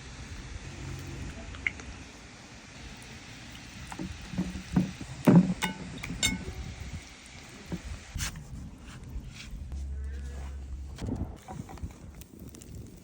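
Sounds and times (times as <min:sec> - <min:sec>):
knocks and metallic clinks: 0:04.0 - 0:06.7.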